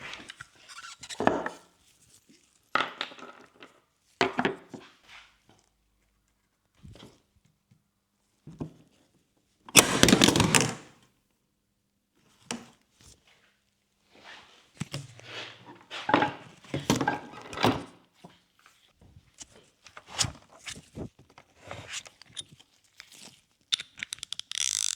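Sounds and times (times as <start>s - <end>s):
tools clicking and knocking: 22.1s - 24.9s.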